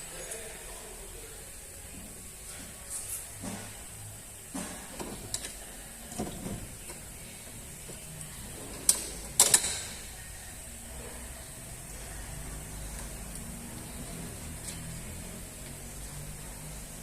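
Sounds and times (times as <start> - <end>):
tools and parts clicking and knocking: 8.8 - 10.0.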